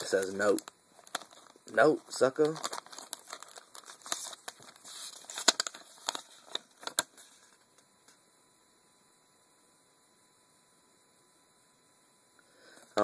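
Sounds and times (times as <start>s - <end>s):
paper rustling and crinkling: 0.0s - 7.6s.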